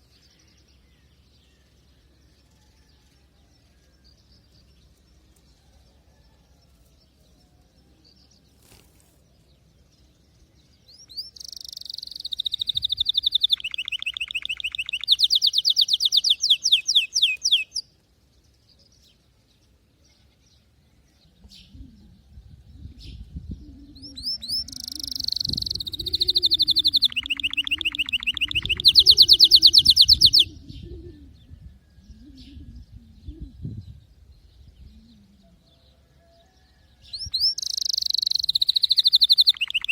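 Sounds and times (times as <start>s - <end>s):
canary singing trills: 10.6s - 17.9s, 21.4s - 33.8s, 37.0s - 39.9s
low wavering hum: 30.4s - 34.0s.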